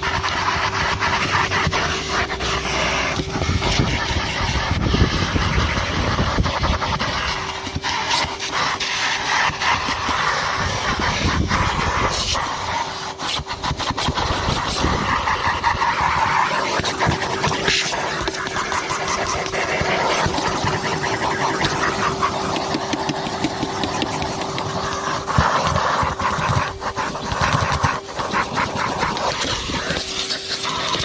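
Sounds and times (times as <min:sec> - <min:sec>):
vacuum cleaner running: 0:00.0 - 0:31.0
sharp clicks and knocks: 0:21.6 - 0:24.9.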